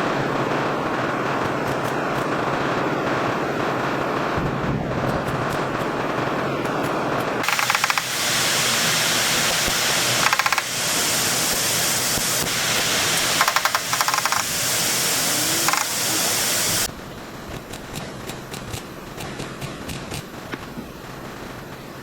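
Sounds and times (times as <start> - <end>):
rapid rattling bursts: 0.2 - 16.9
air tool hissing: 7.4 - 16.9.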